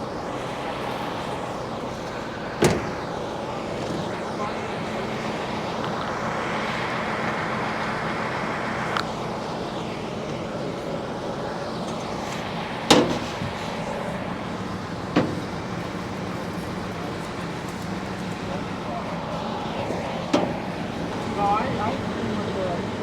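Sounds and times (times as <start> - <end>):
engine running: 0.0 - 23.0
sharp knocks: 2.6 - 3.0.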